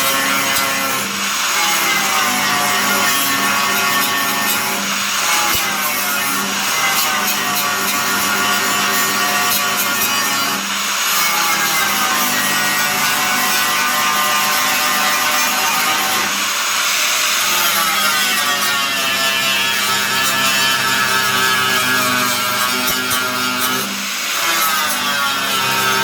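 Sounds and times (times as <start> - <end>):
angle grinder grinding steel: 0.0 - 26.0.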